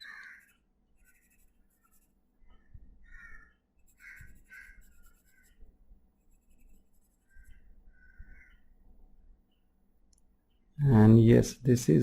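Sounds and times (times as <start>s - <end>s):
crows cawing: 0.0s - 0.6s, 3.0s - 5.5s, 7.3s - 8.6s
pencil scratching on paper: 0.0s - 2.2s, 3.8s - 5.6s, 6.2s - 7.7s.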